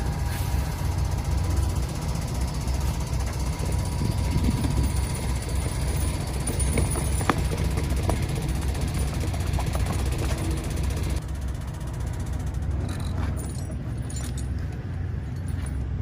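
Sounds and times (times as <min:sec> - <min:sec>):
hiss: 0:00.0 - 0:01.6
diesel truck engine rumbling: 0:00.0 - 0:16.0.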